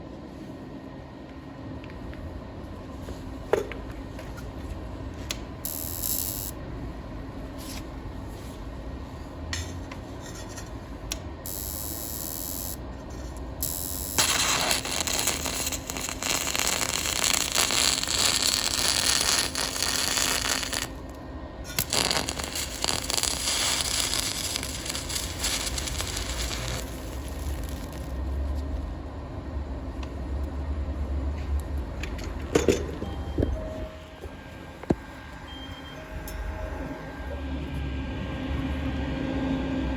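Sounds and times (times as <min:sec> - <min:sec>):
welding power source humming: 0:05.3 - 0:06.7, 0:11.1 - 0:29.1
welding hissing: 0:05.7 - 0:06.5, 0:11.5 - 0:12.8, 0:13.6 - 0:28.2.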